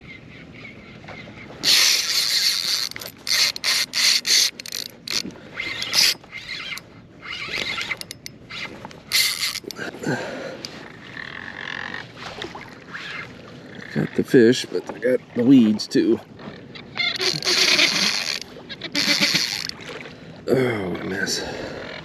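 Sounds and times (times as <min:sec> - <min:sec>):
fishing reel ratcheting: 0:01.6 - 0:09.8, 0:17.1 - 0:19.8.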